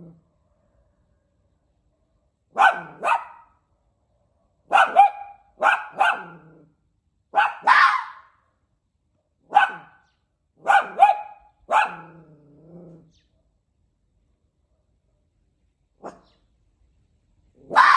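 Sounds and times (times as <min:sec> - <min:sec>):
fox barking: 0:02.5 - 0:03.6, 0:04.6 - 0:08.4, 0:09.4 - 0:13.3, 0:16.0 - 0:16.4, 0:17.6 - 0:17.9
fox drawn-out call: 0:07.4 - 0:08.3, 0:17.6 - 0:17.9.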